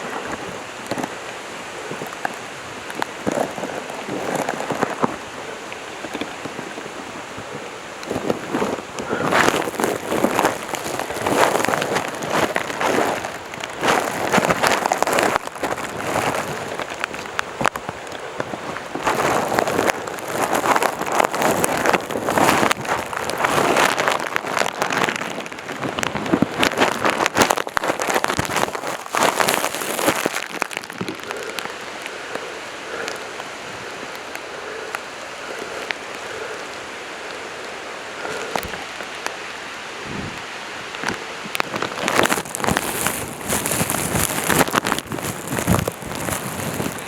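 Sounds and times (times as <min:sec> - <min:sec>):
footsteps crunching on trail: 0:00.0 - 0:32.2, 0:41.0 - 0:47.0
clothing rustling: 0:03.0 - 0:17.8, 0:18.6 - 0:31.3, 0:41.8 - 0:47.0.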